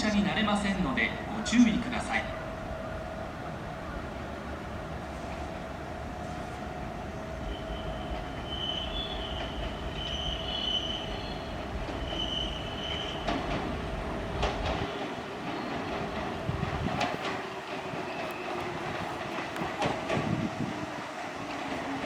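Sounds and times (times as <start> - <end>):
train rumble: 0.0 - 22.0
high wheel squeal: 7.4 - 13.3.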